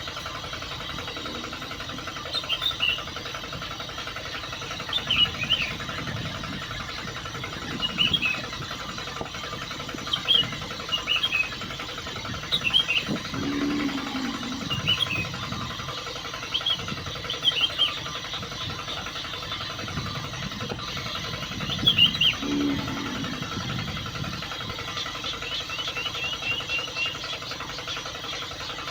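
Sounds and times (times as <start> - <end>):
small motor humming: 0.0 - 28.9.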